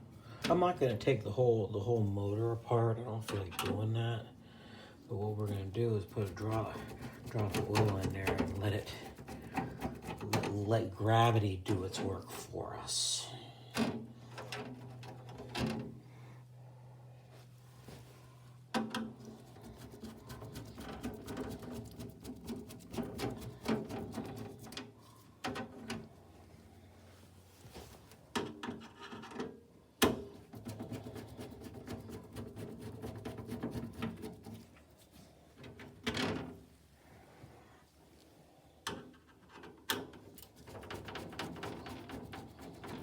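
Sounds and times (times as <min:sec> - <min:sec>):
fan parts knocking: 0:06.1 - 0:10.7, 0:18.7 - 0:26.0, 0:40.6 - 0:43.0.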